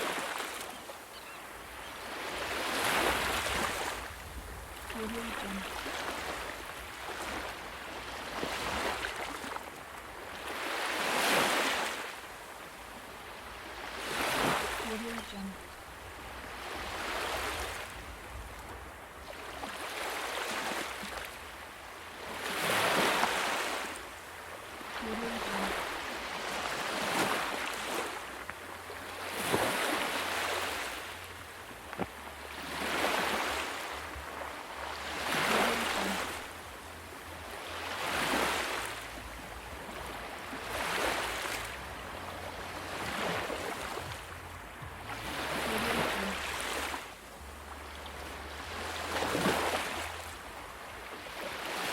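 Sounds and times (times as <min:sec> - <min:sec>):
ocean waves breaking on shore: 0:00.0 - 0:51.9.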